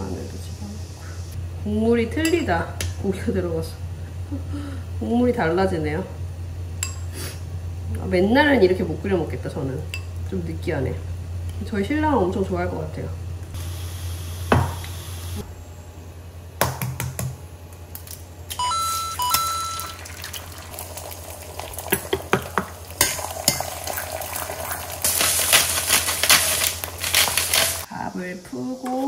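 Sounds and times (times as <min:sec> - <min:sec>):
steady low hum: 0:00.0 - 0:29.0
two-note electronic beep: 0:18.6 - 0:20.0
loud sizzling with crackles: 0:19.8 - 0:27.9
utensils clicking against pots: 0:21.8 - 0:24.1, 0:25.0 - 0:27.9.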